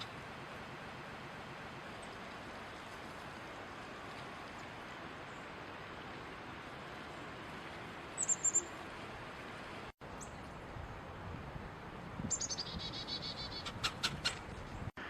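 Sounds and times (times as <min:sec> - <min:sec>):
high thin bird chirps: 0:08.2 - 0:08.7
sharp bird calls: 0:08.2 - 0:08.7, 0:12.3 - 0:14.5.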